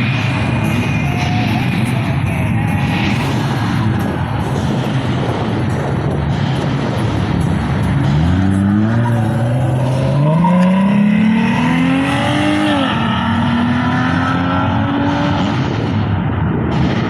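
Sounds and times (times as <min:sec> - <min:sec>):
car engine accelerating: 0:06.2 - 0:17.0.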